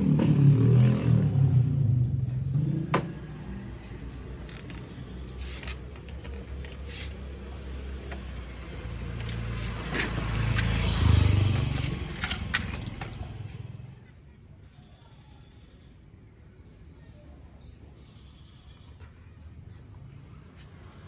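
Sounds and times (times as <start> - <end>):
vehicle engine running: 0.0 - 14.1.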